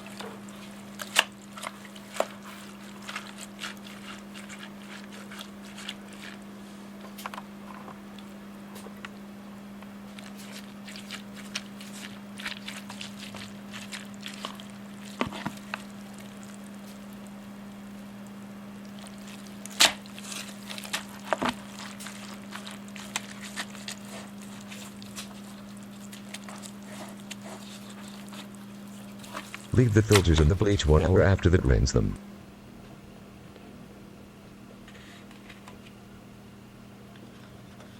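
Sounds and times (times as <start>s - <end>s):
steady low hum: 29.8s - 32.2s.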